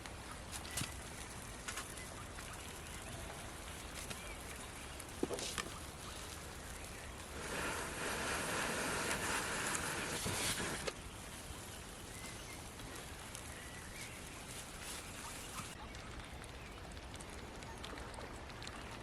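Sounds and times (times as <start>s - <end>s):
fire crackling: 0.0s - 19.0s
kebab sizzling over campfire: 0.0s - 19.0s.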